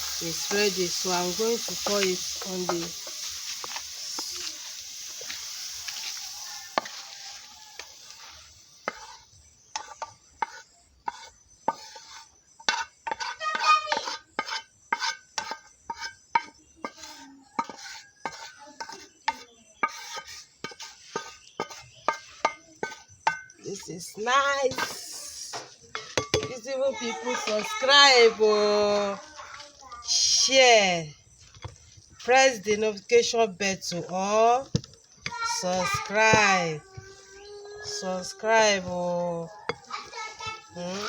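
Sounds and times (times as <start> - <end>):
vegetables sizzling in hot oil: 0.0 - 19.0, 19.8 - 41.0
spoon scraping cookware: 0.0 - 24.1, 24.7 - 26.7.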